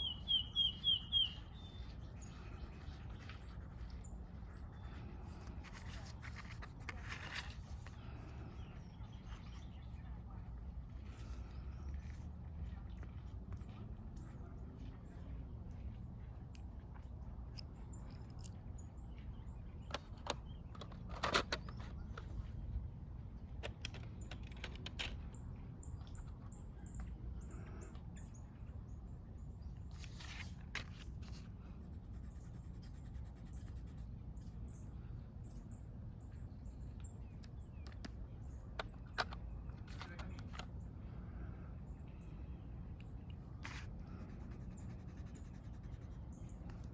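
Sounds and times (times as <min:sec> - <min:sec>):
faint bird chirps: 0:00.0 - 0:05.4
low outdoor rumble: 0:00.0 - 0:19.8, 0:24.8 - 0:46.9
scratchy strokes on paper: 0:00.7 - 0:08.0, 0:29.9 - 0:34.1, 0:43.6 - 0:46.9.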